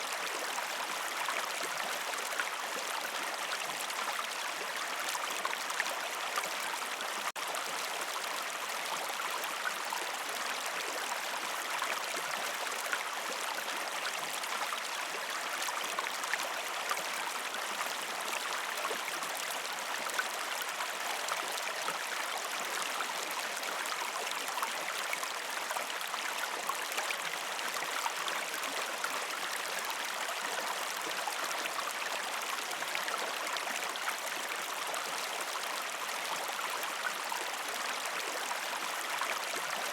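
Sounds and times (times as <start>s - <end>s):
water flowing over rocks: 0.0s - 39.9s.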